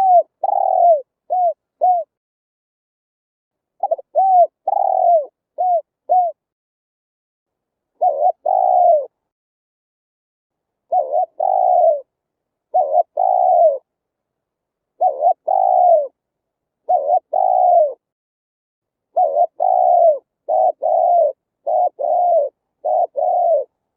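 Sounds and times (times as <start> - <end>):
dove cooing: 0.0 - 2.2, 3.8 - 6.4, 8.0 - 9.2, 10.9 - 12.1, 12.7 - 13.9, 15.0 - 16.2, 16.8 - 18.1, 19.1 - 23.8.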